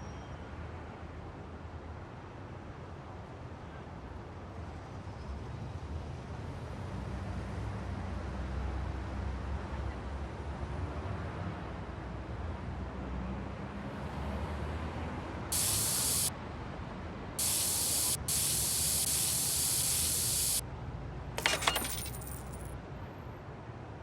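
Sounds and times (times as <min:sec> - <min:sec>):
spraying hiss: 0:15.5 - 0:16.3, 0:17.4 - 0:20.6
metallic jingle: 0:21.4 - 0:22.7.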